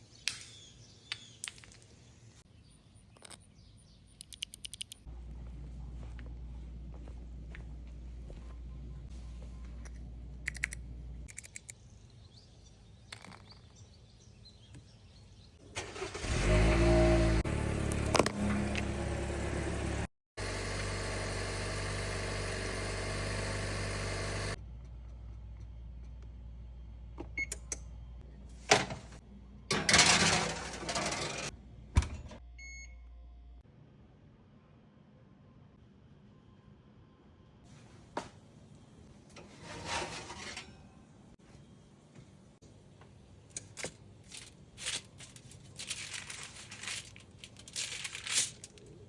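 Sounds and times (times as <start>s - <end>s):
crinkling and rustling: 43.5s - 49.0s.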